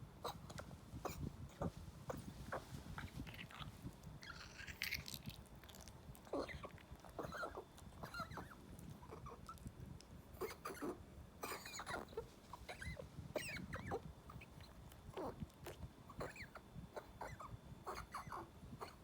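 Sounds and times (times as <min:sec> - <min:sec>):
dog squeaks: 0:06.3 - 0:09.5, 0:10.4 - 0:14.6, 0:16.2 - 0:19.0.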